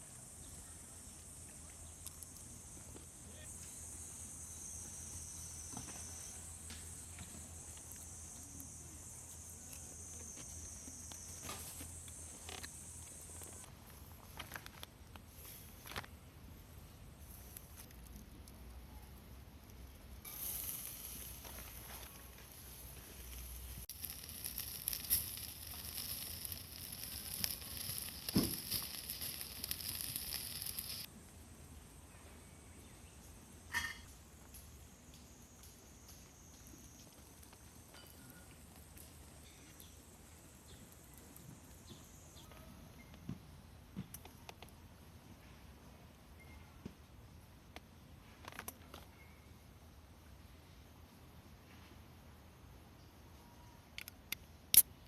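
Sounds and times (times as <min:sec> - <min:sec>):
insects chorus: 0:00.0 - 0:13.7, 0:20.2 - 0:43.5
food sizzling over charcoal: 0:00.2 - 0:31.1, 0:33.6 - 0:43.2
crackles and pops: 0:01.4 - 0:03.8, 0:05.7 - 0:16.2, 0:17.2 - 0:31.1, 0:34.4 - 0:43.2, 0:44.1 - 0:44.8, 0:47.6 - 0:49.1, 0:53.9 - 0:55.0.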